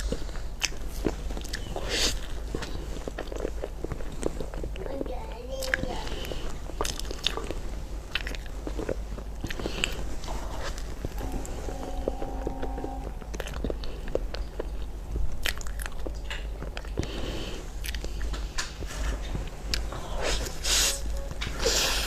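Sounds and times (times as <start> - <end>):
person chewing crunchy food: 0.0 - 4.9, 5.6 - 11.2, 13.4 - 18.8.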